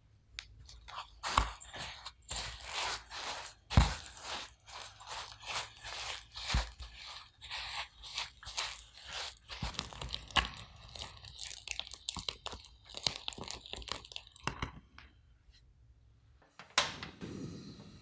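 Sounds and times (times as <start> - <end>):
crinkling and scraping: 0.4 - 14.8.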